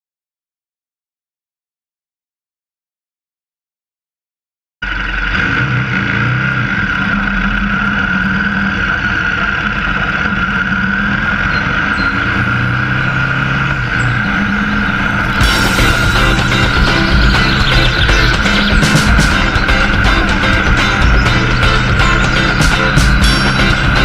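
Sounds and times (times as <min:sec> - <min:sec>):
motorcycle engine running: 0:04.8 - 0:24.0.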